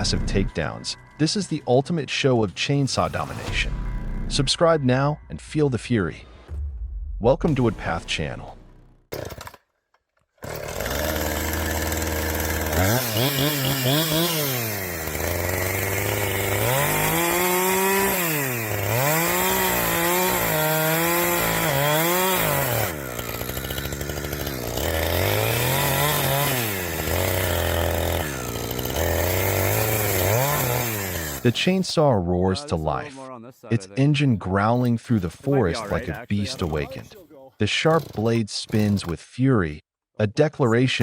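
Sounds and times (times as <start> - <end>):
chainsaw engine revving: 9.1 - 9.6, 10.4 - 31.8, 35.5 - 39.1.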